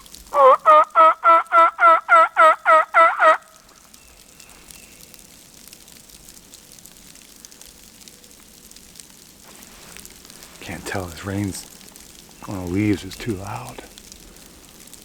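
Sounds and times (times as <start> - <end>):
turkey call yelps: 0.0 - 3.6
light rain on leaves: 0.0 - 15.0.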